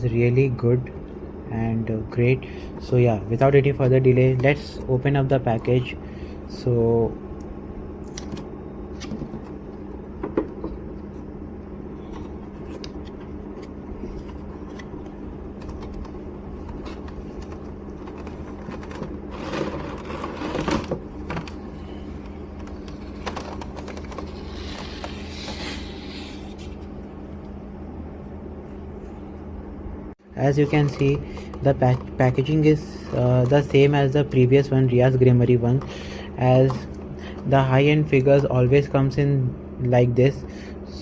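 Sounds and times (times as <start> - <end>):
steady low hum: 0.0 - 41.0
cardboard rustling scrape: 16.8 - 21.0, 23.0 - 26.9.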